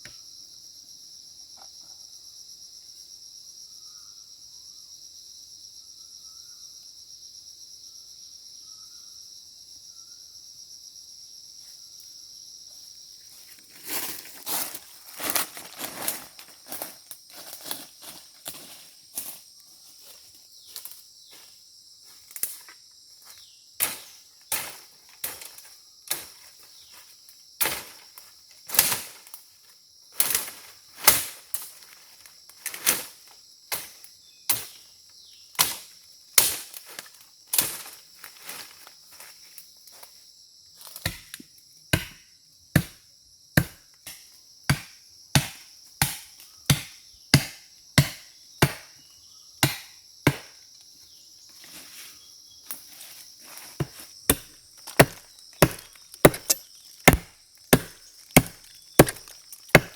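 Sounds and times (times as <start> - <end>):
insects chirring: 0.0 - 59.9
blade chopping into wood: 41.0 - 41.4, 42.0 - 42.2, 42.8 - 43.0, 43.6 - 48.9, 49.6 - 50.6, 53.8 - 59.9.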